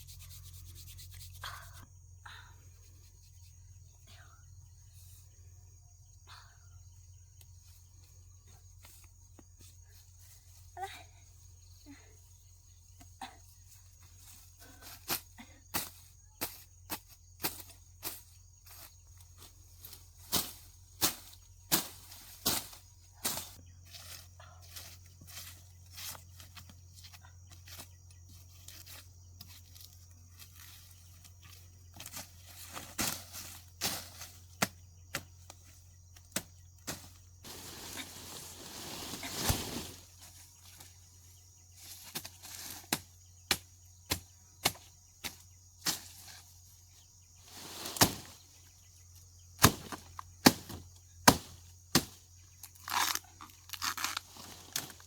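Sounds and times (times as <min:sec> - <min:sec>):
rustling: 0:36.9 - 0:40.9.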